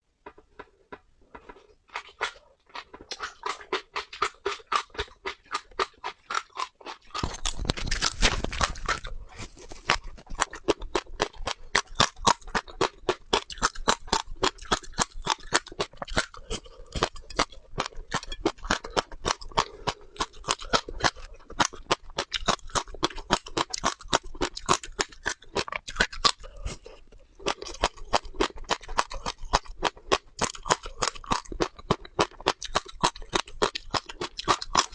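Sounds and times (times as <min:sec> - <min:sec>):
seeds being chewed: 0:00.2 - 0:34.9.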